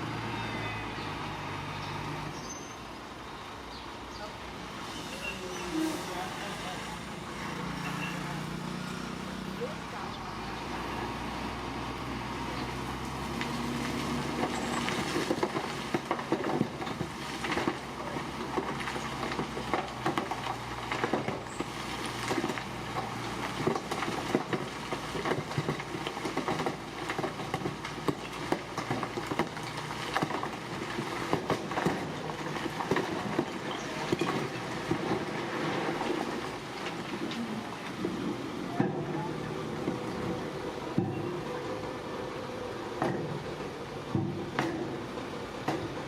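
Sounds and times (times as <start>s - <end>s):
diesel engine drone: 0.0s - 46.0s
clanks of metal and rock: 14.4s - 38.1s.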